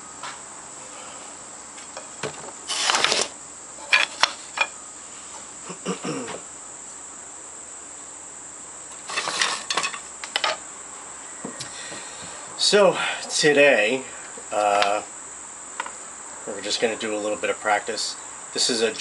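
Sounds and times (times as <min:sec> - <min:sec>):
crickets trilling: 0:00.0 - 0:19.0
wooden gear clattering and knocking: 0:02.2 - 0:04.7, 0:09.1 - 0:10.6.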